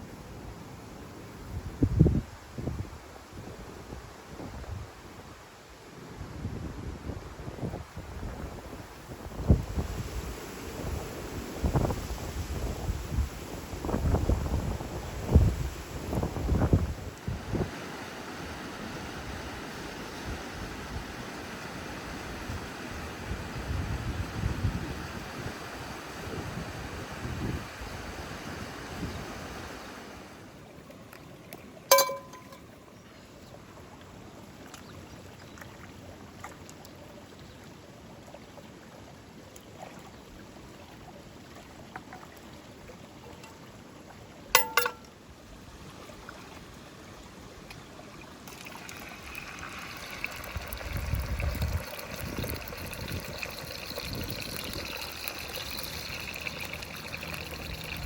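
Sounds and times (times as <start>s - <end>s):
liquid trickling and pouring: 30.8s - 32.8s, 38.0s - 45.1s, 47.9s - 58.0s
sharp ringing clinks: 31.9s - 32.6s, 44.6s - 45.0s.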